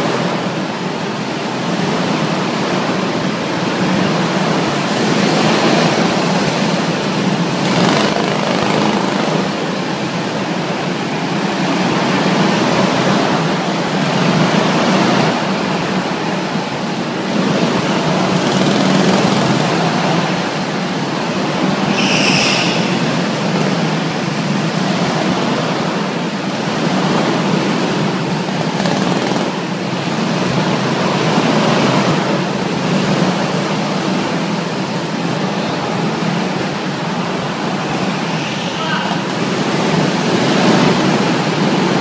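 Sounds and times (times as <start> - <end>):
go-karts droning on indoor track: 0.0 - 42.0
brief high-pitched sound: 21.9 - 23.4.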